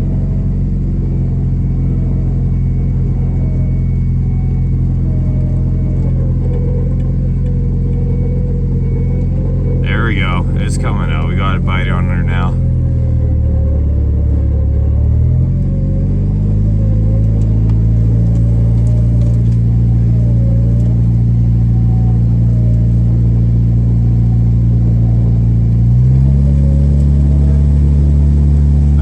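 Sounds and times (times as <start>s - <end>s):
faint wavering whine: 0.0s - 29.0s.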